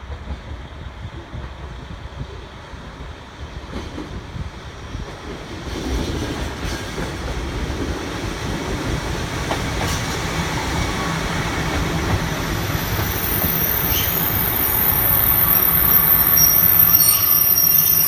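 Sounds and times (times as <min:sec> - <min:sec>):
diesel train rumble and rail noise: 0:00.0 - 0:18.0
high-pitched brake squeal: 0:12.5 - 0:18.0.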